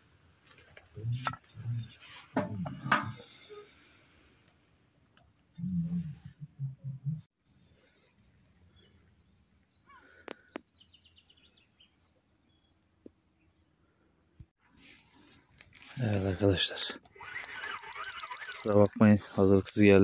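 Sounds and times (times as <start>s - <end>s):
outdoor ambience: 0.0s - 20.0s
sharp clicks: 16.9s - 19.0s.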